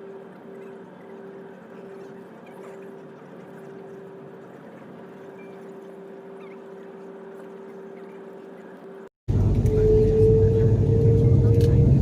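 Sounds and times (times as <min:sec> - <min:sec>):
aircraft cabin hum: 0:09.3 - 0:12.0.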